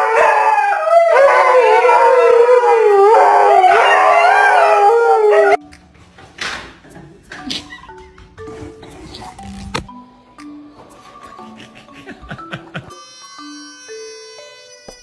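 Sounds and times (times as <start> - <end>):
dog howling: 0.0 - 5.6.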